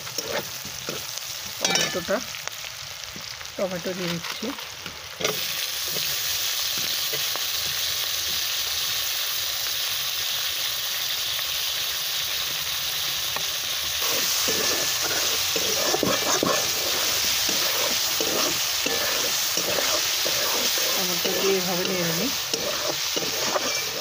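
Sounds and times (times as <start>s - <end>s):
metal spatula scraping wok: 0.0s - 2.2s, 4.0s - 8.4s, 14.0s - 24.0s
vegetables sizzling in oil: 0.0s - 24.0s.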